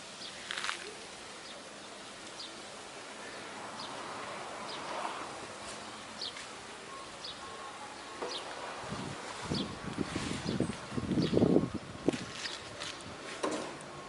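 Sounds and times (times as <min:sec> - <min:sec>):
broad noise: 0:00.0 - 0:14.0
steady background hiss: 0:00.0 - 0:14.0
small birds chirping: 0:05.6 - 0:08.6, 0:09.5 - 0:11.6.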